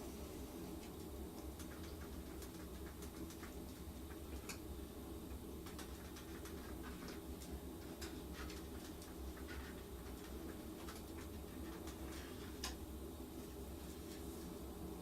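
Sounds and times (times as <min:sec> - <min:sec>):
faint ticks and clicks: 0:00.7 - 0:12.9.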